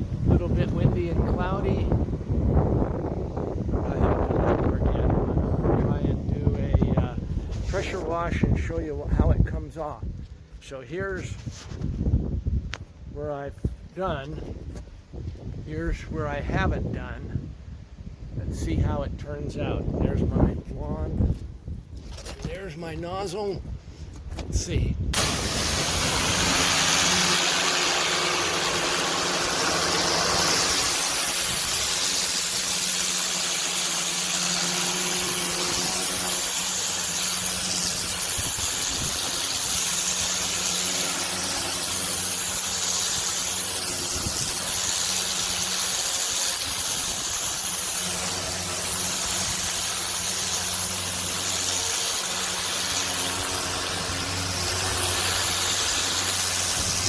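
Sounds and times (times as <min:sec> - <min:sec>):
high-pressure water hissing: 0:25.2 - 0:57.0
pressure washer machine hum: 0:25.2 - 0:57.0.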